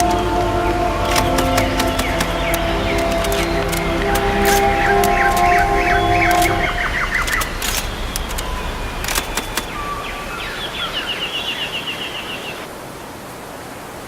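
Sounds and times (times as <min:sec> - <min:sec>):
sharp clicks: 0:00.0 - 0:09.9
birds chirping: 0:00.0 - 0:12.7.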